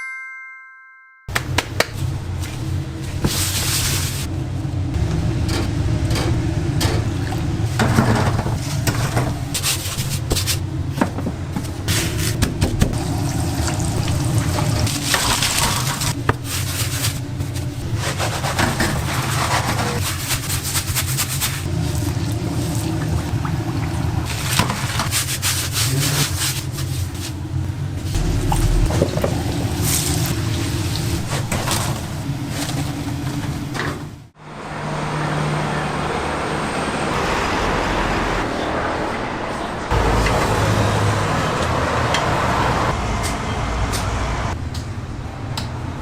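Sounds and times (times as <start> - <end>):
low machine hum: 4.3 - 9.6, 27.2 - 33.6
kitchen clatter and knocks: 5.4 - 13.1.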